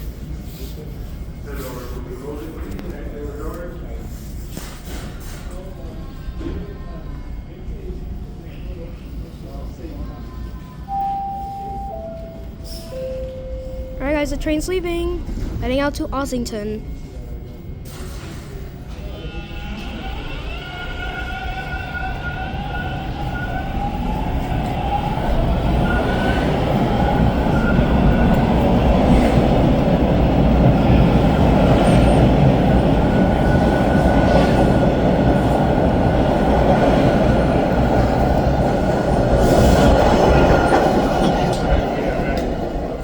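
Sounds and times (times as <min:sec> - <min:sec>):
wheels rumbling on rail: 0:19.8 - 0:43.0.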